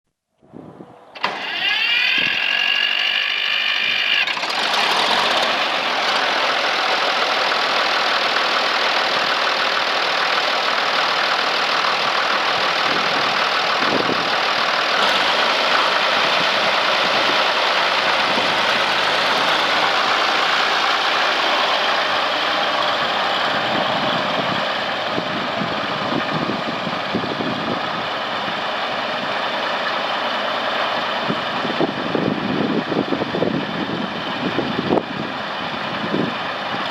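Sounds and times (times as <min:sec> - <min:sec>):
tractor engine running: 0:01.1 - 0:36.9
starter motor whine: 0:01.2 - 0:28.0.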